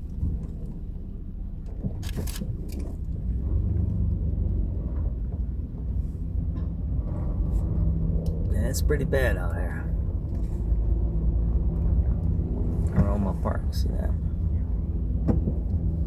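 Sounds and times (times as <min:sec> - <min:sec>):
car driving rumble: 0:00.0 - 0:16.0.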